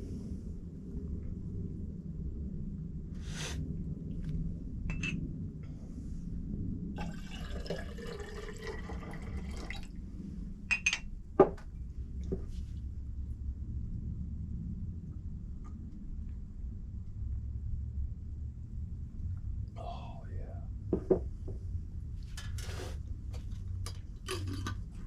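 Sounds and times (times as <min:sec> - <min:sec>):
steady low rumble: 0:00.0 - 0:25.0
water splashing and dripping: 0:07.0 - 0:09.9.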